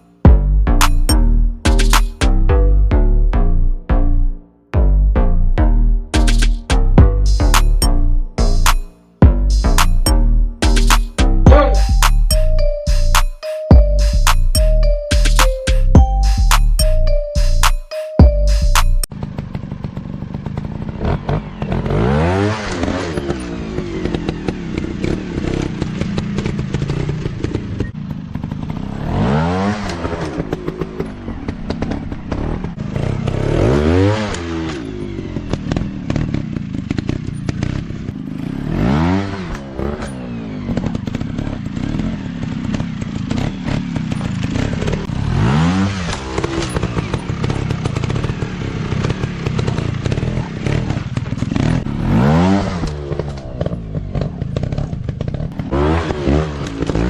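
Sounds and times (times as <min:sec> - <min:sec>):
dirt bike engines revving: 0:19.2 - 0:57.0.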